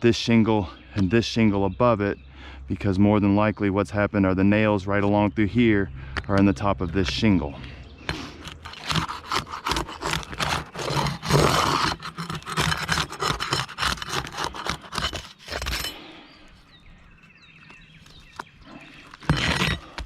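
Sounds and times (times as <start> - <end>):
roof shingles scraping and tearing: 8.1 - 15.9, 18.9 - 20.0.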